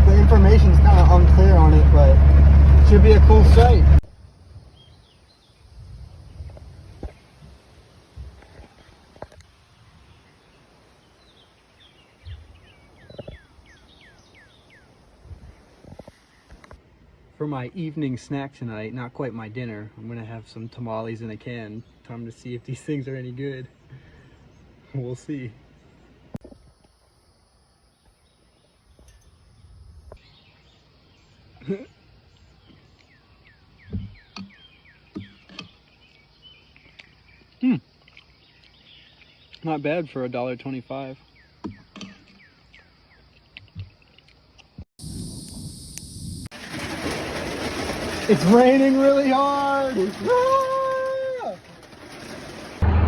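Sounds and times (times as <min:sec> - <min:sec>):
faint outdoor hiss: 0:04.1 - 0:46.5
bird singing: 0:04.5 - 0:05.8, 0:09.8 - 0:14.9, 0:27.9 - 0:44.3
dull thump: 0:33.9 - 0:34.5.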